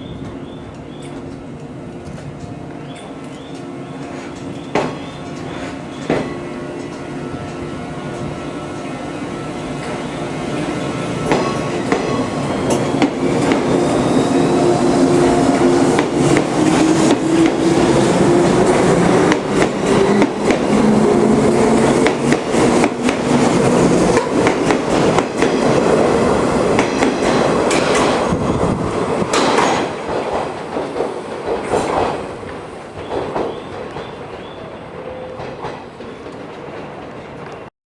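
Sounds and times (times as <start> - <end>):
train wheels clacking over rail joints: 15.5 - 25.9, 26.6 - 28.3, 29.2 - 37.7.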